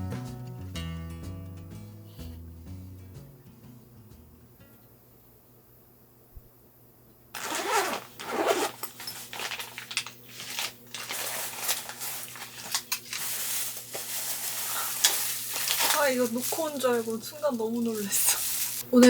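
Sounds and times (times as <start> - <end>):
zipper pulled open: 7.4 - 9.6
rustling and rummaging in bag: 7.4 - 19.0.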